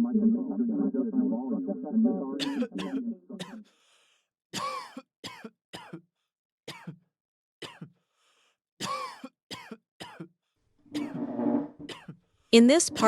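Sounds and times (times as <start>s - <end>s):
person coughing: 2.4s - 3.6s, 4.6s - 6.0s, 6.7s - 7.0s, 7.6s - 7.9s, 8.8s - 10.3s.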